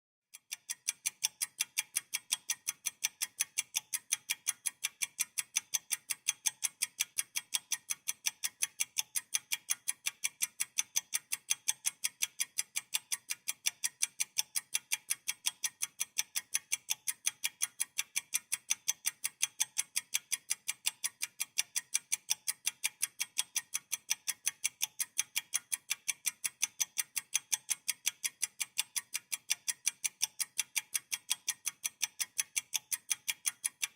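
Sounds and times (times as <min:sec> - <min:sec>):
rapid even ticking: 0:00.4 - 0:33.9.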